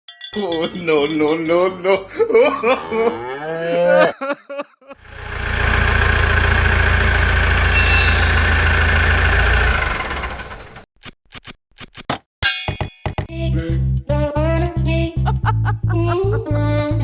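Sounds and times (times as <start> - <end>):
tractor engine humming: 5.0 - 10.8.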